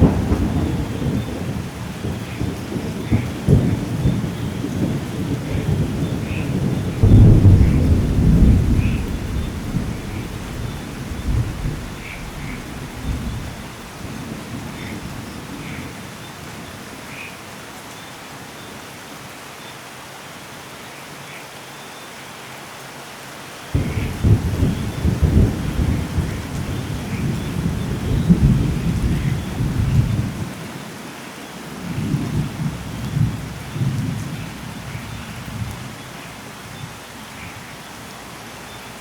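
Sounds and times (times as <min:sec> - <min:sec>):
thunder clap and rumble: 0:00.0 - 0:16.0, 0:23.8 - 0:30.6, 0:31.8 - 0:36.0
steady rain: 0:00.0 - 0:39.0.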